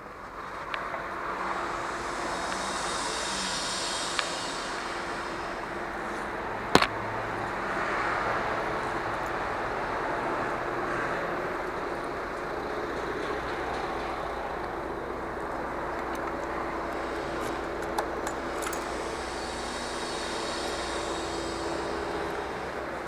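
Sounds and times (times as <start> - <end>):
road and wind noise: 0.0 - 23.0
sharp ticks: 1.8 - 5.6.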